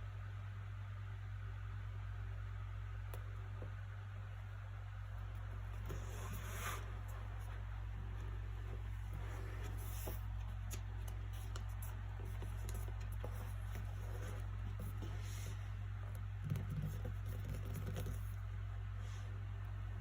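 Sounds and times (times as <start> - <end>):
low background hum: 0.0 - 20.0
book pages rustling: 5.6 - 15.6.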